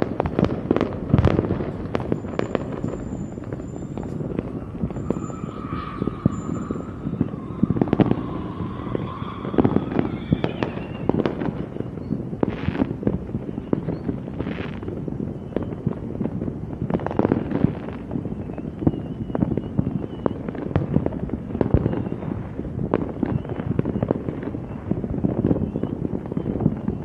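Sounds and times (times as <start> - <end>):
fireworks bangs and crackles: 0.0 - 27.0
fireworks hissing bursts: 0.0 - 27.0
faint whistle-like tone: 2.1 - 12.2, 15.3 - 15.8, 18.3 - 20.6, 21.7 - 22.4, 23.2 - 27.0.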